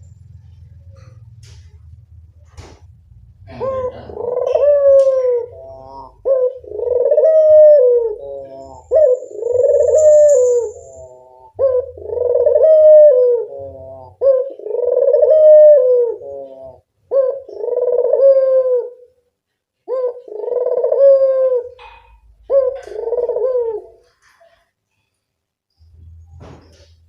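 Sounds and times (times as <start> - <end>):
dove cooing: 3.4 - 19.2, 19.8 - 24.6.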